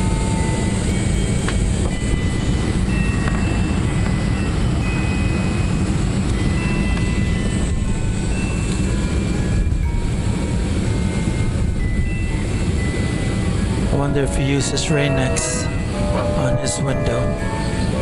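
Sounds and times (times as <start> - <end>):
jet engine and airflow rumble: 0.0 - 18.0.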